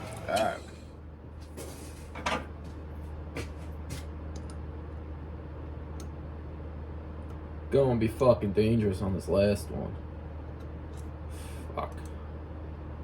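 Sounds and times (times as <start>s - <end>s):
lathe humming: 0.0s - 0.8s.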